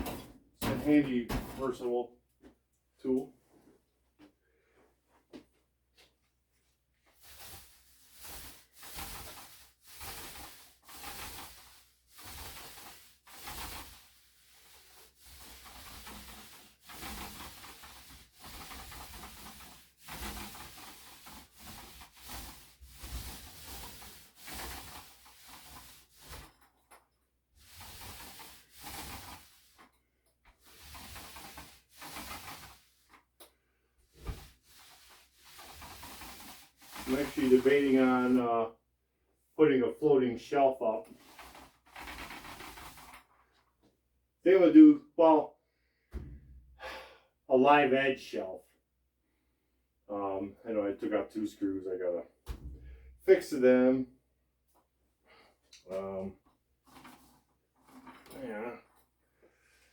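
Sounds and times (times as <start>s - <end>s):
applicator rubbing on drywall: 7.1s - 26.7s, 27.6s - 38.6s, 41.0s - 43.4s, 55.9s - 58.9s.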